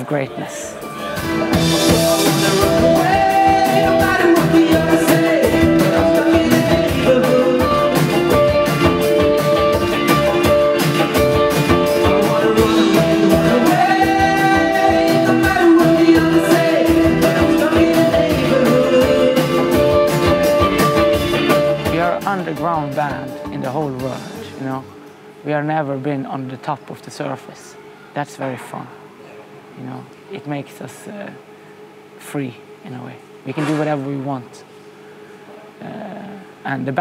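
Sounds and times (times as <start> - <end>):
person singing: 0.6 - 10.7, 11.6 - 24.5
indie rock band playing: 0.8 - 24.6.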